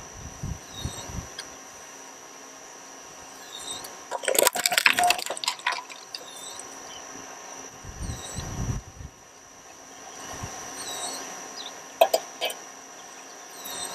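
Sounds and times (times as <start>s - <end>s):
shredder crunching plastic: 4.1s - 6.3s.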